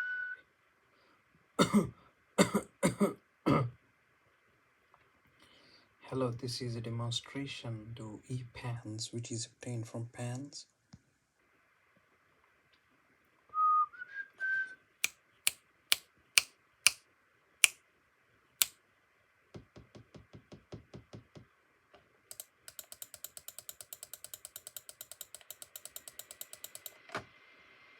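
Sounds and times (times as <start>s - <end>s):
quick clicking: 22.3s - 27.0s.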